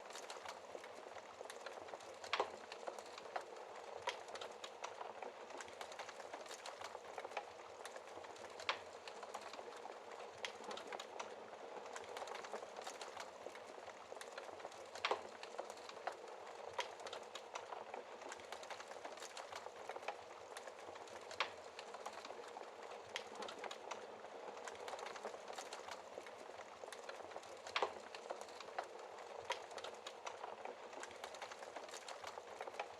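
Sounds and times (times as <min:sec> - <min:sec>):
wood fire crackling and popping: 0:00.0 - 0:32.9.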